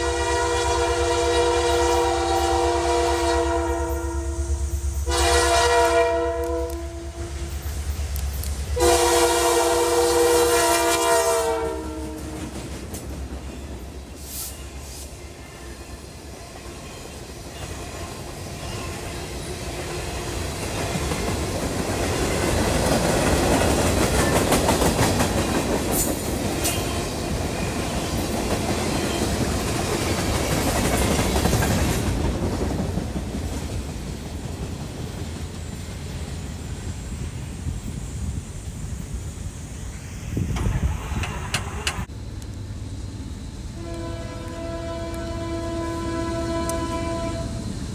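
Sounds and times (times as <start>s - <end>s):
locomotive horn blast: 0.0s - 7.6s, 8.8s - 12.5s, 43.8s - 47.7s
passing train rumble and clatter: 0.0s - 47.9s.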